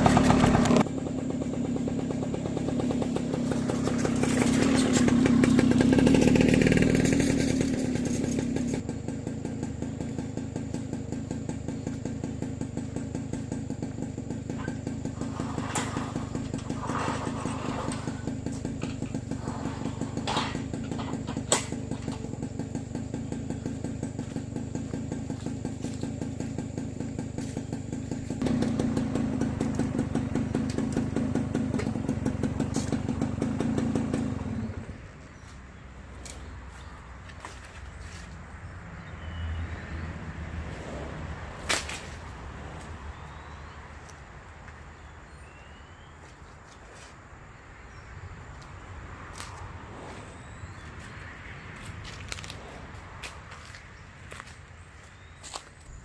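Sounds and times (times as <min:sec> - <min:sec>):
small engine running: 0:00.0 - 0:43.5.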